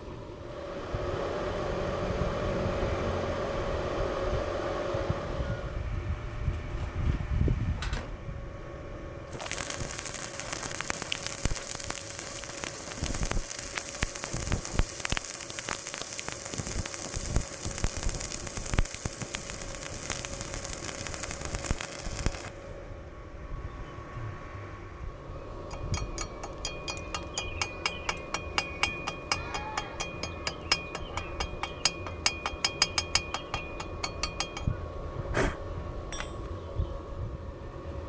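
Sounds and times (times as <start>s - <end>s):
steady hum: 0.0s - 6.2s, 8.2s - 38.0s
arc welding crackling hiss: 9.3s - 22.8s, 25.7s - 34.7s.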